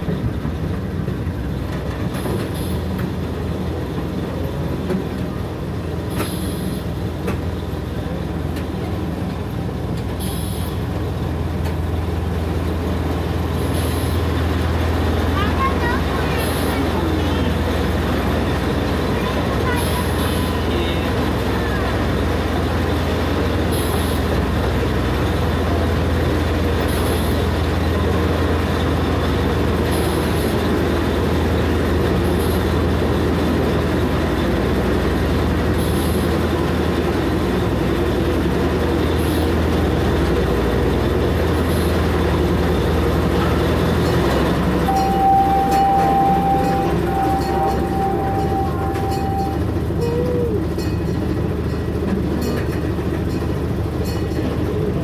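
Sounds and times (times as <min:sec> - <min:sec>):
train cars rumbling on track: 0:00.0 - 0:55.0
high squeal: 0:44.8 - 0:50.7.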